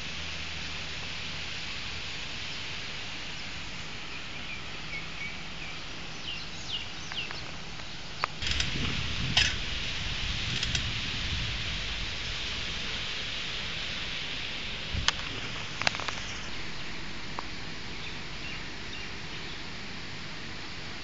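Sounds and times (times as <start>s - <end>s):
steady outdoor hiss: 0.0s - 21.0s
small birds chirping: 2.4s - 8.7s, 15.1s - 17.0s, 17.8s - 19.7s
rustling with low rumble: 5.4s - 18.9s
sharp clicks: 8.2s - 9.6s, 10.5s - 10.9s.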